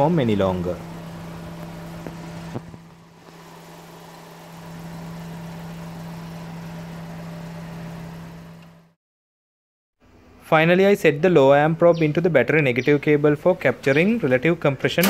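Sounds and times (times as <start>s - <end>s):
car engine idling: 0.0s - 8.9s.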